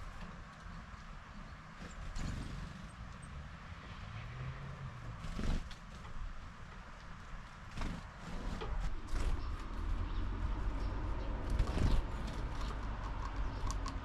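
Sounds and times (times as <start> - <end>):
steady low rumble: 8.3 - 14.0.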